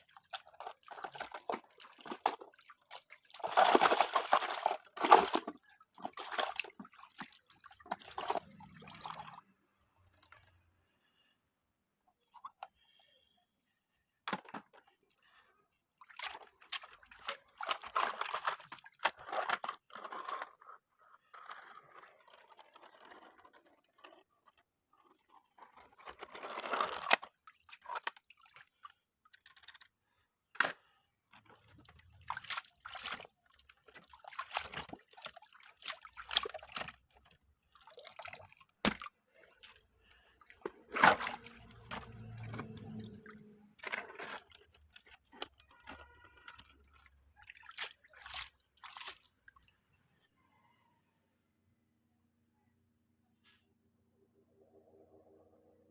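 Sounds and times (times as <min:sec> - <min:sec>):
water splashing and sloshing: 0:00.0 - 0:11.2, 0:14.3 - 0:20.4, 0:25.1 - 0:29.9, 0:30.6 - 0:50.0.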